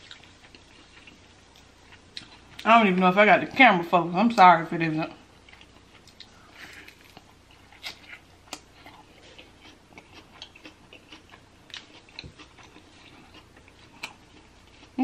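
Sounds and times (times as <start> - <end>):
person chewing crisp food: 0.0 - 2.7, 5.4 - 15.0.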